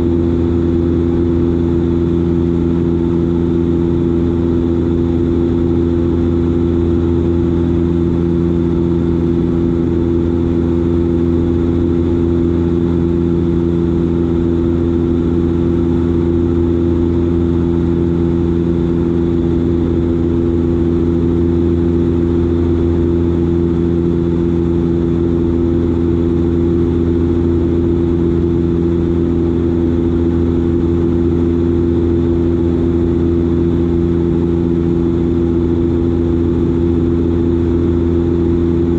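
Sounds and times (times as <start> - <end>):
turboprop engines droning: 0.0 - 38.9.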